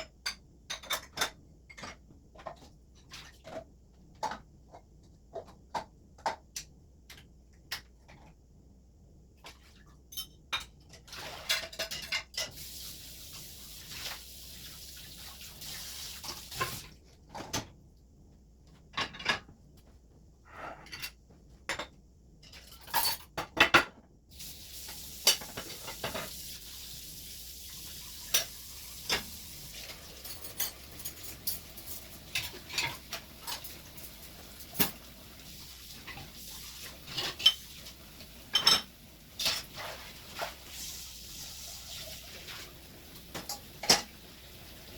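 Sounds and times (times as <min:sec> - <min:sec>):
dishes and cutlery clinking: 0:00.0 - 0:04.8, 0:10.0 - 0:12.6, 0:20.7 - 0:24.0, 0:25.2 - 0:26.4, 0:28.3 - 0:35.1, 0:36.0 - 0:40.6, 0:43.3 - 0:44.2
steady hiss: 0:12.5 - 0:16.9, 0:24.3 - 0:44.9.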